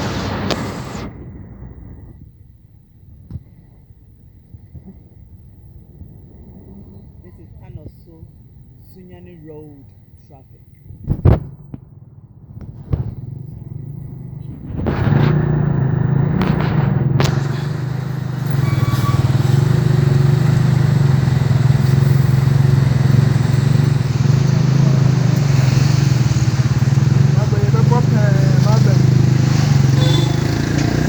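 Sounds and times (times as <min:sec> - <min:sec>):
lorry engine: 0:00.0 - 0:01.2, 0:12.5 - 0:31.0
road and wind noise: 0:00.0 - 0:31.0.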